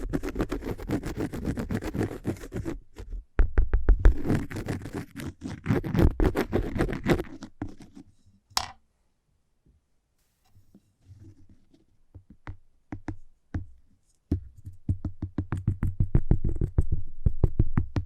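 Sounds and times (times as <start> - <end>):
fingernails scratching on cork: 0.0 - 3.2, 4.0 - 8.1.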